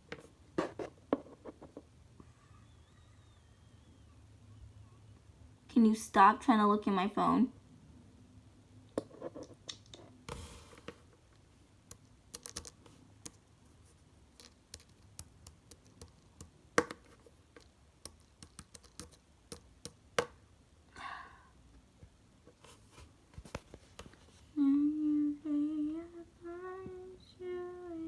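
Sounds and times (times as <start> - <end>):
small objects clicking on hard surface: 12.3 - 13.4, 14.4 - 20.4.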